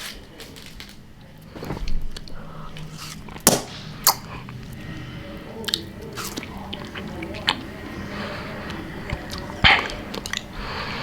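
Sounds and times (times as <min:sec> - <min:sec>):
sharp clicks and crunches: 0:00.0 - 0:04.2
person chewing popsicle: 0:00.2 - 0:11.0.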